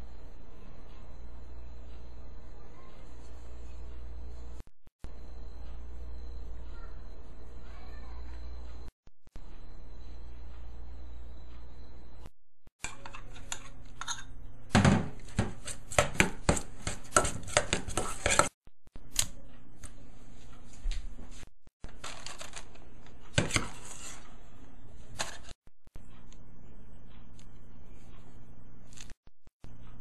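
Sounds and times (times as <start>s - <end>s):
kitchen utensils knocking and scraping: 12.8s - 18.5s, 23.3s - 24.3s.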